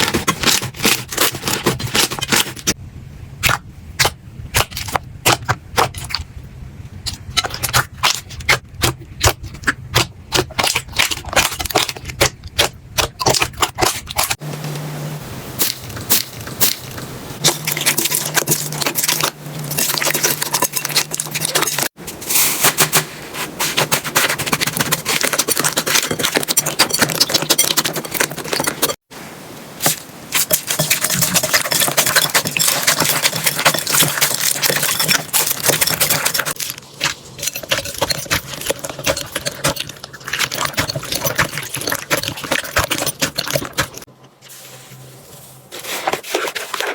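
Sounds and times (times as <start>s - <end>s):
dense steady crackling: 29.8s - 44.5s.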